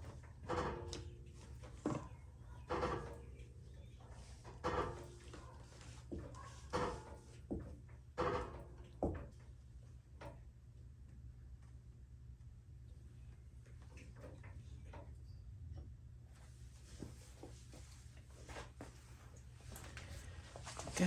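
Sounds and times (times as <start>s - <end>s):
floor jack clunking and creaking: 6.1s - 9.4s.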